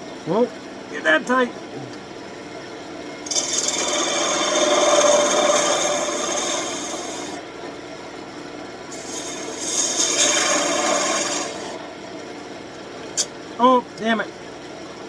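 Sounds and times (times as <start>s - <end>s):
lathe tool scraping wood: 3.2s - 7.4s, 8.9s - 11.9s.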